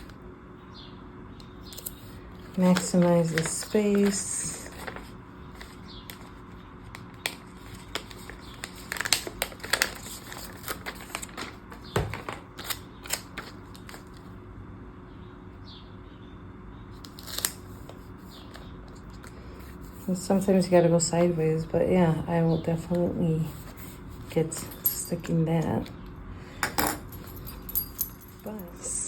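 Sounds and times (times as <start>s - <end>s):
paper rustling: 1.8s - 14.3s, 17.0s - 21.4s, 22.9s - 24.9s.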